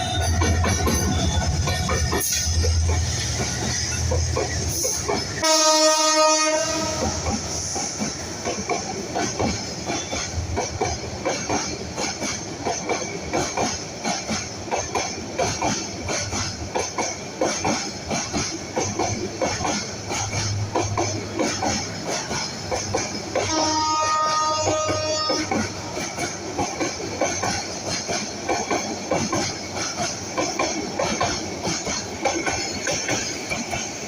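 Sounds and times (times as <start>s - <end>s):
train horn blast: 5.4s - 7.2s, 23.4s - 26.0s
wheels clattering over rail joints: 6.8s - 34.0s.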